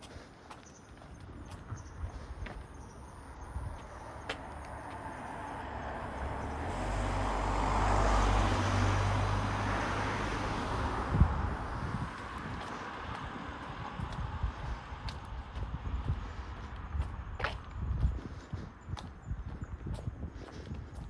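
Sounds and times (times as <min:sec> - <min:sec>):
car driving past: 0:05.2 - 0:14.4.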